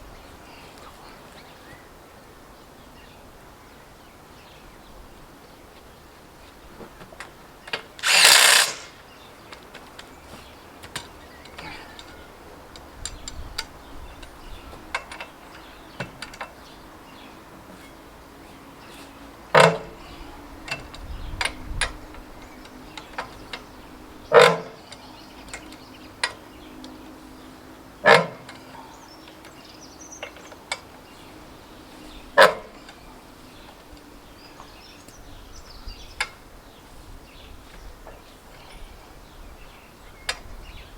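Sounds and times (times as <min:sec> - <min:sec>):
metal tool rasping: 0:08.0 - 0:09.0.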